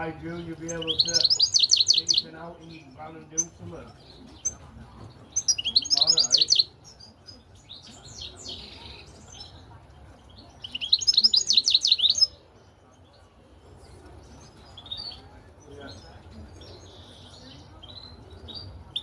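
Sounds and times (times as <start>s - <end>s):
goldfinch twittering: 0.3s - 4.6s.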